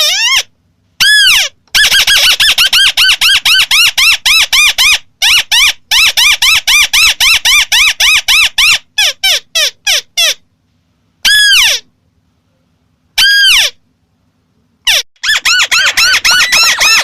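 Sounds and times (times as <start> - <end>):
bird calling fast rising notes: 14.9 - 17.0.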